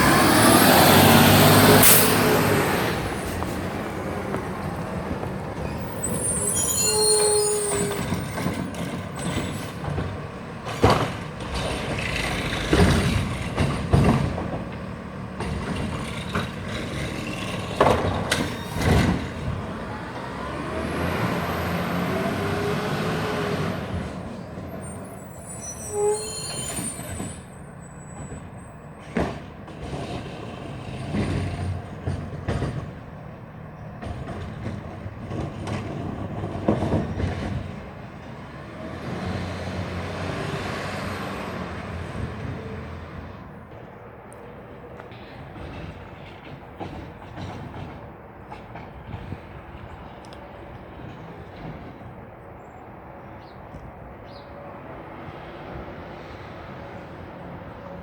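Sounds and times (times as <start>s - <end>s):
high brake squeal: 0.0s - 3.6s, 5.5s - 9.8s, 18.3s - 19.4s, 21.3s - 29.2s
garbage truck engine running: 0.0s - 6.2s.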